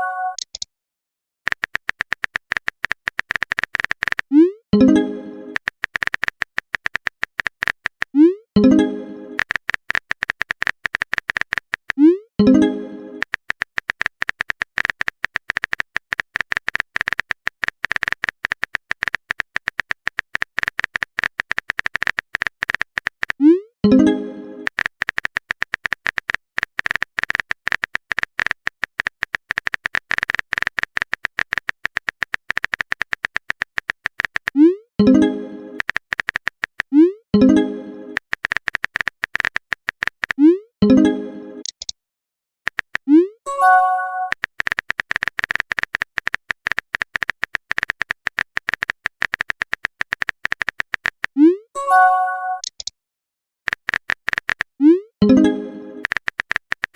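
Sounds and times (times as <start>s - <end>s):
chat message alert tone: 0.0s - 0.5s, 43.2s - 44.4s, 51.8s - 52.7s
phone keyboard typing clicks: 0.2s - 0.7s, 1.5s - 4.9s, 5.5s - 8.8s, 9.4s - 12.6s, 13.2s - 23.4s, 24.0s - 40.4s, 41.6s - 42.0s, 42.7s - 43.1s, 44.0s - 51.5s, 52.5s - 52.9s, 53.7s - 56.9s.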